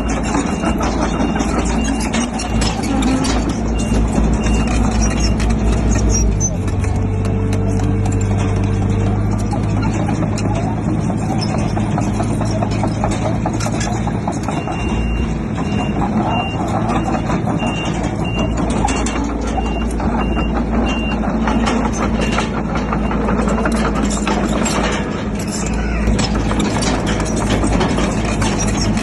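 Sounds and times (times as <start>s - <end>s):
reversing alarm beeping: 0.0s - 5.7s, 14.5s - 23.8s
heavy diesel machinery rattling: 0.0s - 29.0s.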